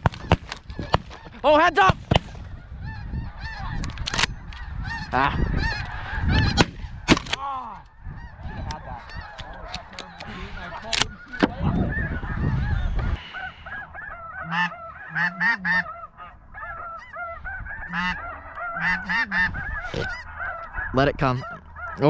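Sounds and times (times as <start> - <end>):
geese honking: 0.0 - 7.1, 7.8 - 22.0
sharp cracks: 1.8 - 2.4.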